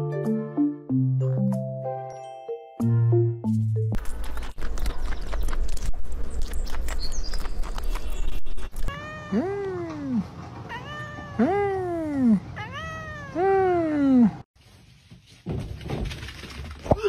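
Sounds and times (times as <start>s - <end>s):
music: 0.0s - 4.0s
cat meowing: 8.9s - 13.6s.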